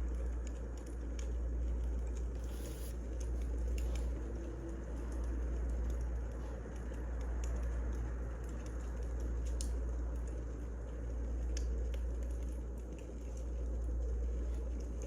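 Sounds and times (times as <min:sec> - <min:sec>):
wood fire crackling: 0:00.0 - 0:15.0
sharp pops and snaps: 0:05.0 - 0:10.4, 0:11.4 - 0:13.1.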